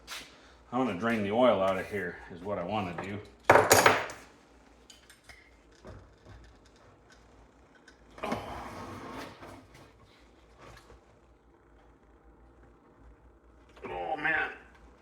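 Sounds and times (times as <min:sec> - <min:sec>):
tools clicking and knocking: 0:03.3 - 0:04.3.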